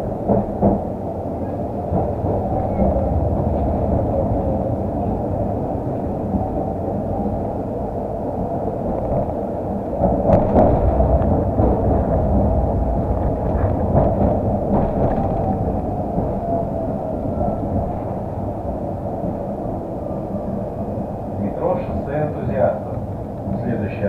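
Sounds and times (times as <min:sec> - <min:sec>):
tram car rumble: 0:00.0 - 0:24.0
knocks and rattles: 0:10.0 - 0:16.5.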